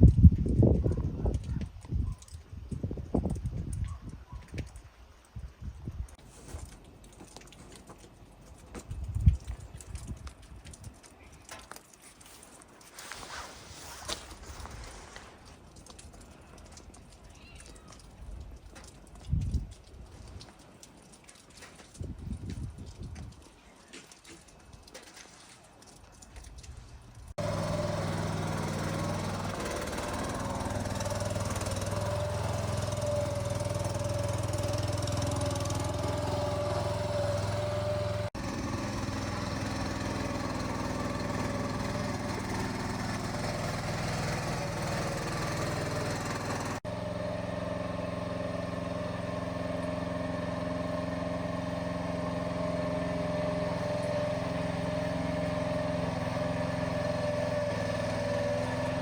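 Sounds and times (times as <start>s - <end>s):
motor humming steadily: 27.2s - 59.0s.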